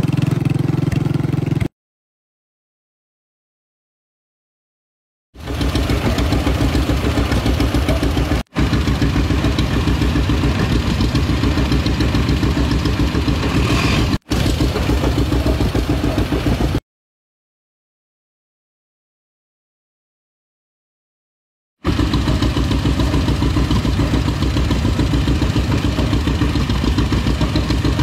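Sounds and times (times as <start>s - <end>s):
tractor engine pulsing exhaust: 0.0s - 1.7s, 5.4s - 16.8s, 21.8s - 28.0s.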